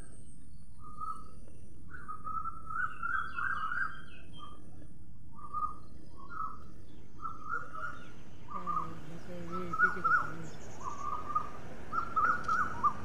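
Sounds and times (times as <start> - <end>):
birds warbling: 5.4 - 13.0.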